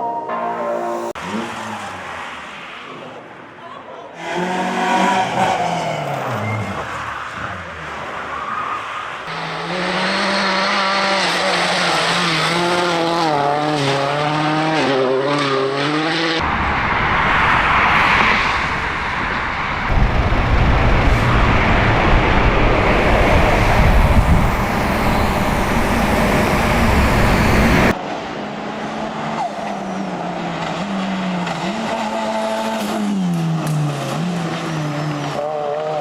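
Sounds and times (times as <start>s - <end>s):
road noise: 0.0s - 36.0s
car engines revving: 1.0s - 3.5s, 4.2s - 36.0s
tires squealing: 4.2s - 13.3s.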